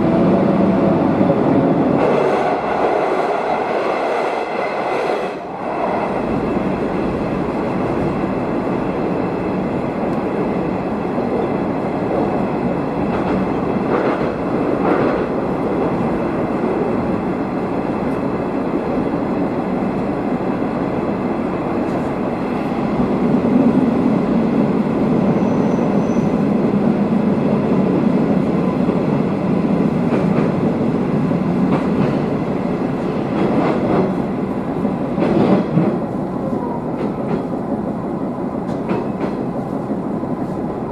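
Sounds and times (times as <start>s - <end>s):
railcar engine and wheels rumbling: 0.0s - 40.9s.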